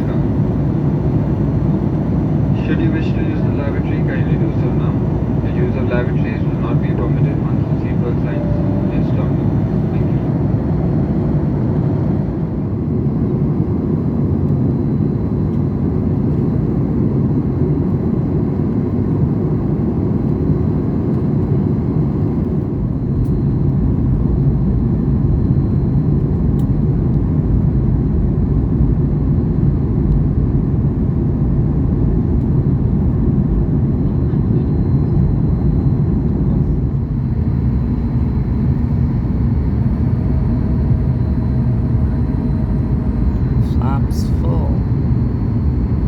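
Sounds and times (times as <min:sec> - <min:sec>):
airliner cabin rumble: 0:00.0 - 0:46.0
faint high steady tone: 0:07.8 - 0:10.2.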